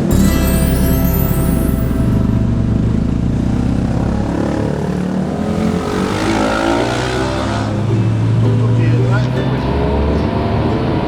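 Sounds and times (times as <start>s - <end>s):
vehicle engine droning: 2.3s - 10.9s.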